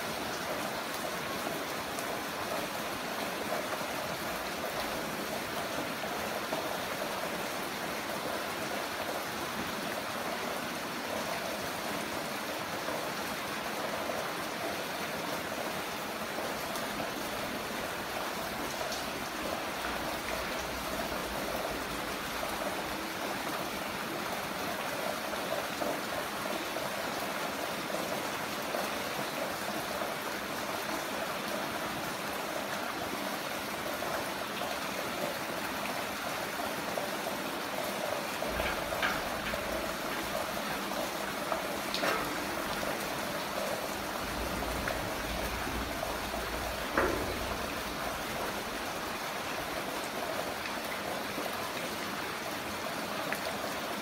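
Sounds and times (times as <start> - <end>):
heavy rain falling: 0.0 - 54.0
sharp raindrop ticks: 38.4 - 49.8.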